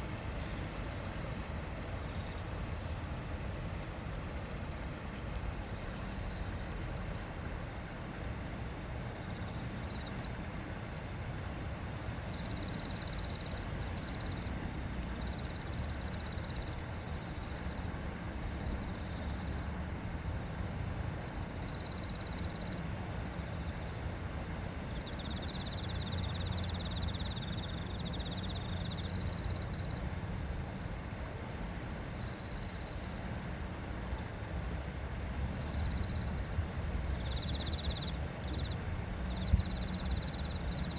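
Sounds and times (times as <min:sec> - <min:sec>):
river water babbling: 0:00.0 - 0:40.9.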